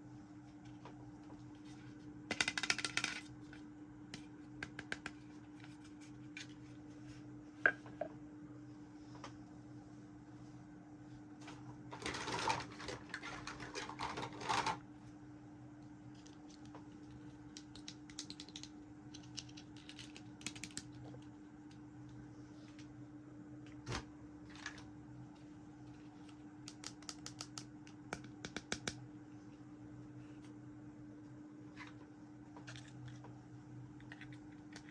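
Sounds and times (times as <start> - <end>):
steady low hum: 0.0 - 13.7, 14.8 - 34.9
plastic toy pieces clicking: 2.3 - 3.2.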